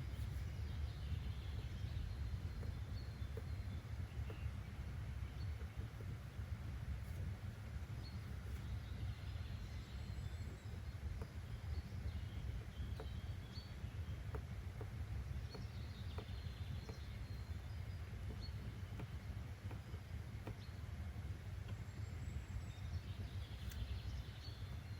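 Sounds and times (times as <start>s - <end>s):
steady low rumble: 0.0s - 24.9s
soft ticks: 1.2s - 8.8s, 9.5s - 24.8s
faint bird chirps: 7.9s - 24.9s.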